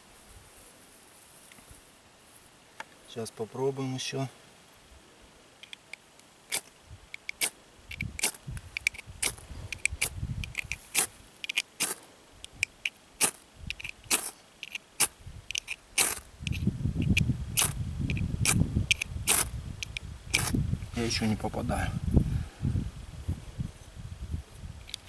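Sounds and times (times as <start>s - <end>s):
rustling of handling: 0.0s - 3.1s
fire steel scraping: 7.3s - 19.5s, 20.3s - 21.5s.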